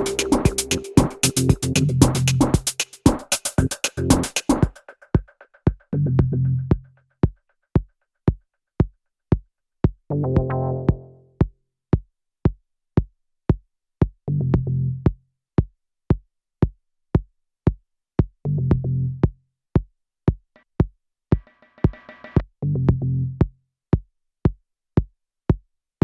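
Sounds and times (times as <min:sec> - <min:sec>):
low synth chord: 0:00.0 - 0:02.0
bright hissy synth: 0:00.0 - 0:02.3
drum machine kick: 0:00.0 - 0:07.4, 0:20.8 - 0:22.5.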